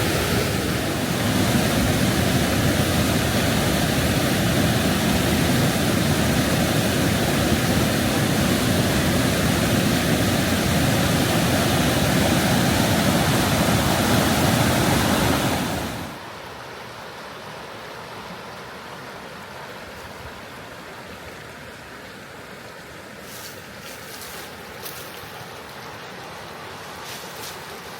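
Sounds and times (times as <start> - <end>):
river rushing over rapids: 0.0 - 27.9.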